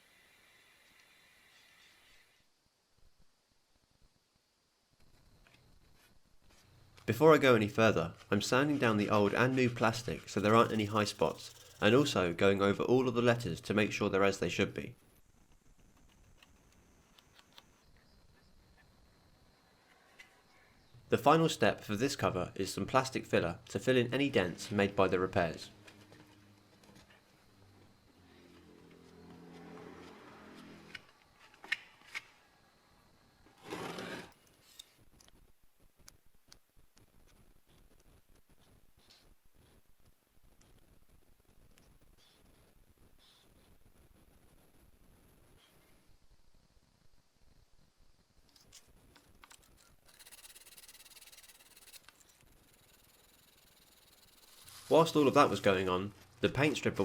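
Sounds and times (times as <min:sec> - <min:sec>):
faint rapid scratching: 0:07.4 - 0:12.2, 0:50.0 - 0:56.5
short scrape: 0:33.6 - 0:34.9.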